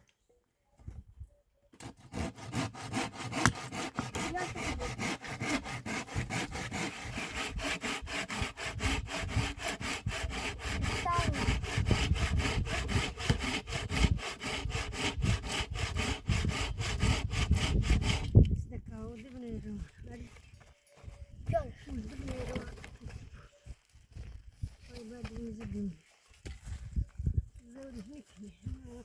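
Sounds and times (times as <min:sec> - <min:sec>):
hand saw cutting through wood: 0:01.8 - 0:18.4.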